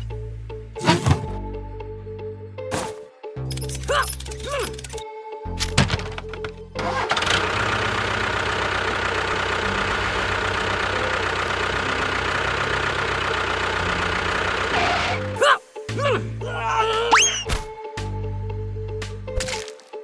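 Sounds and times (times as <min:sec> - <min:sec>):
engine running steadily: 0:00.0 - 0:01.5, 0:05.9 - 0:15.4.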